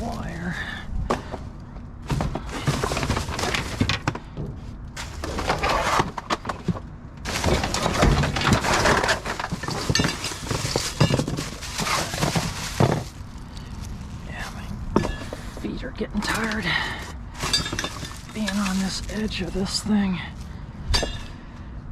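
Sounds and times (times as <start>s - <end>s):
scrap clattering in dumpster: 2.0s - 13.2s, 16.2s - 19.0s.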